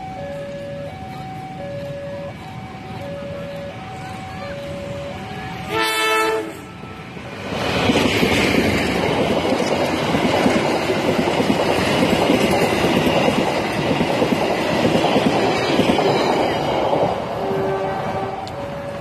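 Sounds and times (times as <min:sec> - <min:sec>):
train wheels clattering over rails: 0:00.0 - 0:19.0
locomotive horn blast: 0:04.6 - 0:07.2, 0:17.4 - 0:19.0.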